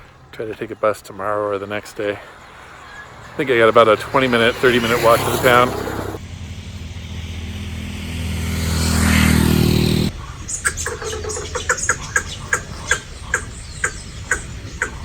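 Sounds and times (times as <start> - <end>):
vehicle engine passing: 1.3 - 10.2.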